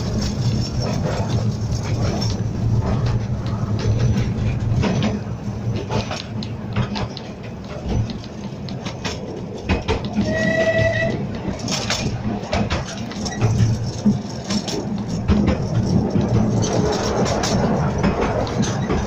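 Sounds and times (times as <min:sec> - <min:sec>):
miniature train rumble: 0:00.0 - 0:19.0
wheels clicking and knocking: 0:00.0 - 0:19.0
steam train whistle: 0:10.2 - 0:11.2.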